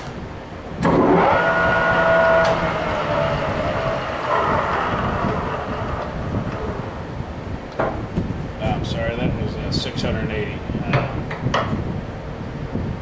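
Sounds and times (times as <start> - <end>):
lathe running with gear whine: 0.8 - 7.2.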